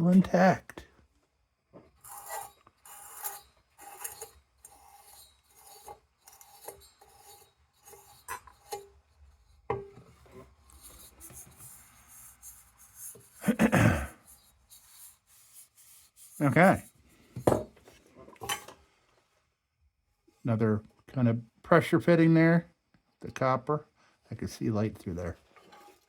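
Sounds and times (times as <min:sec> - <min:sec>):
squeaky scraping strokes: 0:02.1 - 0:09.4.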